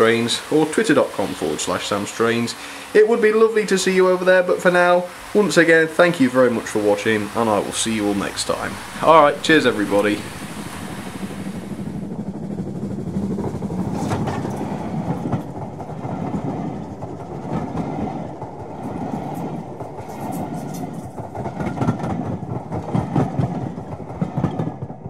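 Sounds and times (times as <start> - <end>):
train wheels rumbling: 0.0 - 25.0
wheels clicking over rail joints: 6.2 - 25.0.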